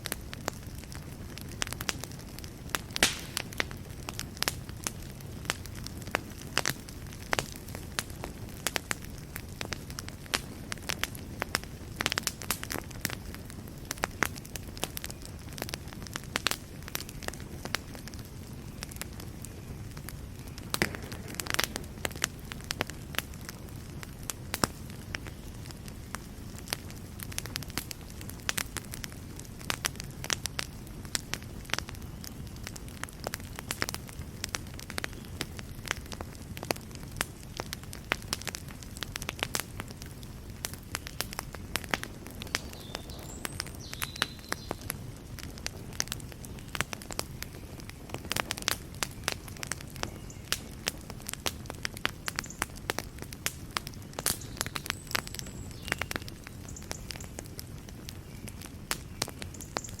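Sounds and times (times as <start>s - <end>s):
fire crackling: 0.0s - 60.0s
low rumble of flames: 0.0s - 60.0s.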